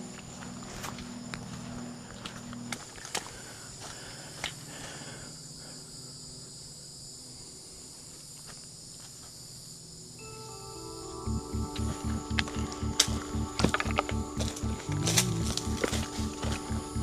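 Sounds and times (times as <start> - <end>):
footsteps on a trail: 0.0 - 5.0, 11.6 - 17.0
crickets trilling: 0.0 - 17.0
music: 10.2 - 17.0.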